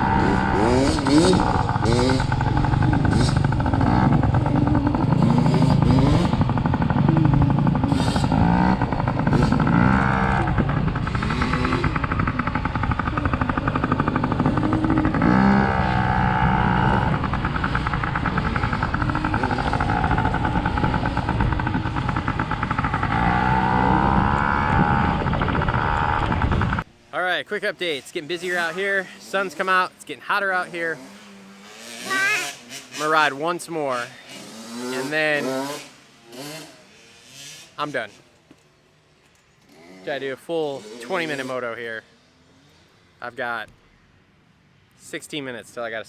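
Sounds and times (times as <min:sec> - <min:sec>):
dirt bike engine accelerating: 0:00.0 - 0:26.9, 0:30.6 - 0:38.1.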